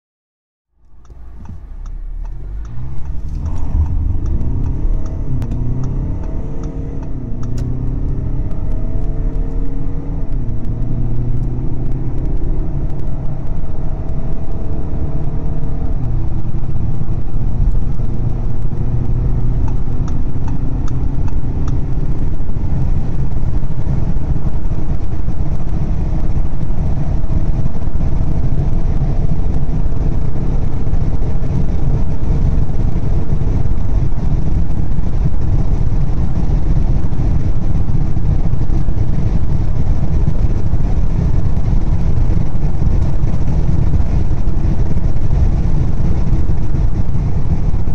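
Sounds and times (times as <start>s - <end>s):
low road rumble: 0.7s - 47.9s
diesel engine accelerating: 0.8s - 47.9s.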